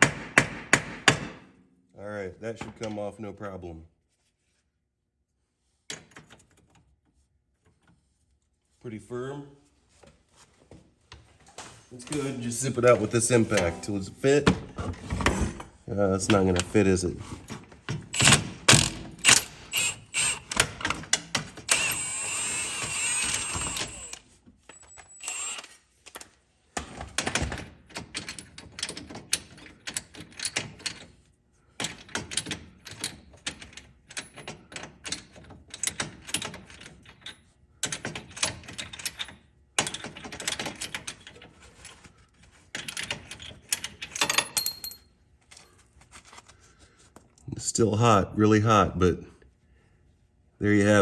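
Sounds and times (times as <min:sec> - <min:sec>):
power tool running: 0:18.2 - 0:20.7, 0:21.7 - 0:24.2, 0:24.8 - 0:25.8.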